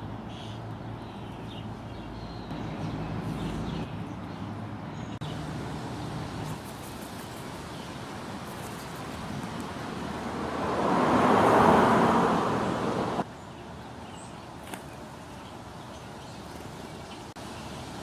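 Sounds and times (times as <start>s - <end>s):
road vehicle passing by: 0.0s - 6.9s, 9.5s - 13.3s
outdoor background noise: 0.0s - 18.0s.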